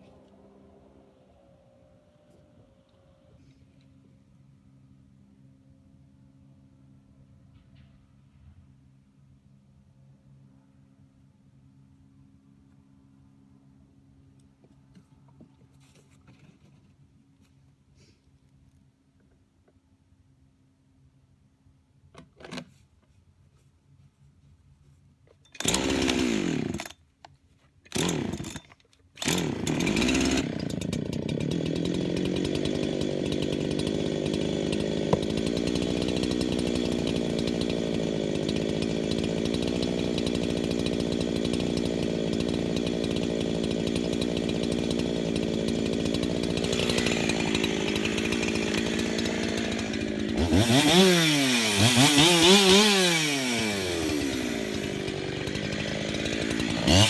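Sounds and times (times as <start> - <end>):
chainsaw starting and idling: 25.4 - 27.1, 27.9 - 57.0
chainsaw revving: 25.6 - 27.0, 27.9 - 57.0.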